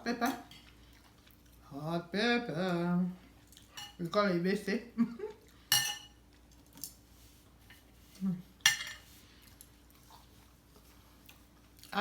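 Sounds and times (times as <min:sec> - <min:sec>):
cutlery clinking on plate: 0:05.7 - 0:06.2, 0:08.6 - 0:09.1.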